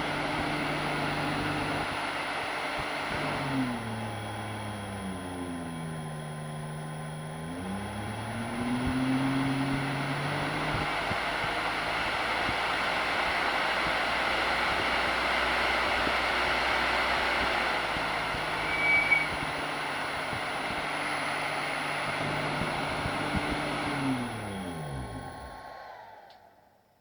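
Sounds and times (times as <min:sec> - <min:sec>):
electric motor humming: 0:00.0 - 0:26.3
brief high-pitched tone: 0:18.5 - 0:19.5.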